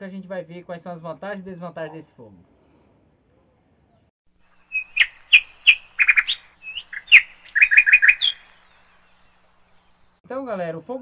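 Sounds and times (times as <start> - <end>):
bird singing: 4.4 - 10.2.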